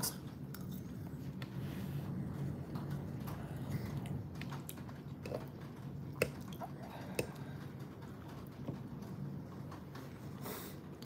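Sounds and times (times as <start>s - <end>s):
person chewing food: 0.0s - 7.9s.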